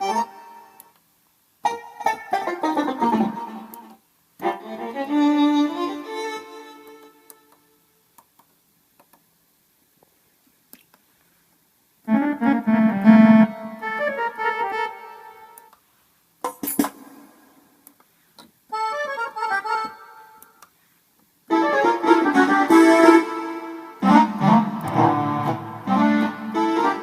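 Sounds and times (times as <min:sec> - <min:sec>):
keyboard playing melodic phrases: 0:00.0 - 0:00.8, 0:01.7 - 0:07.0, 0:12.1 - 0:15.7, 0:18.7 - 0:20.5, 0:21.5 - 0:27.0.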